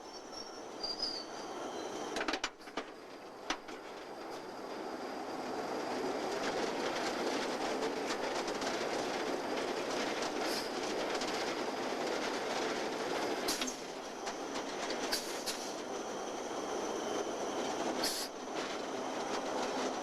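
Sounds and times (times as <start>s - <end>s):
rail car wheels rumbling: 0.0s - 20.0s
clicks over rail joints: 2.2s - 4.1s.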